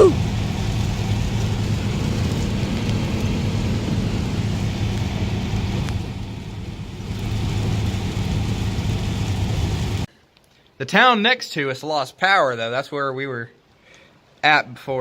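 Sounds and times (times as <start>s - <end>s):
heavy rain hissing: 0.0s - 10.1s
truck rumbling from inside cab: 0.0s - 10.1s.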